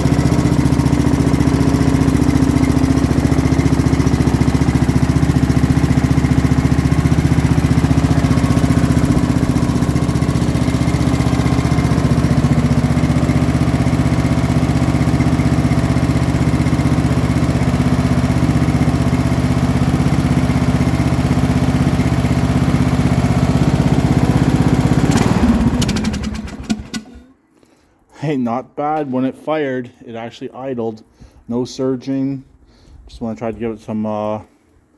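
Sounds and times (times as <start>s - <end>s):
lawn tractor engine idling: 0.0s - 27.3s.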